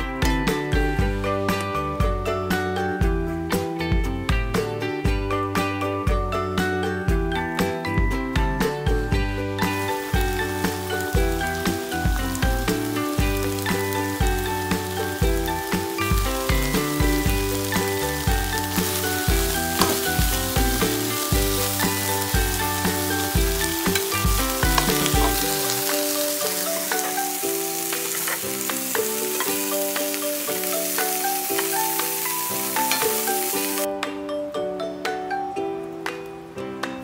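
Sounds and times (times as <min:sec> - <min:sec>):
background music: 0:00.0 - 0:37.0
beef sizzling in a pan: 0:09.4 - 0:33.9.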